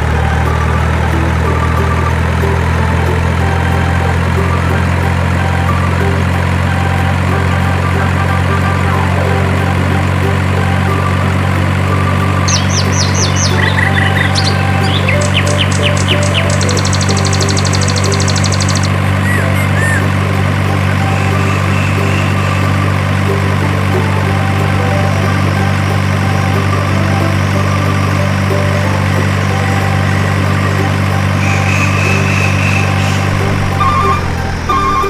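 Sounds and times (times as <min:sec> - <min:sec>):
truck engine idling: 0:00.0 - 0:35.0.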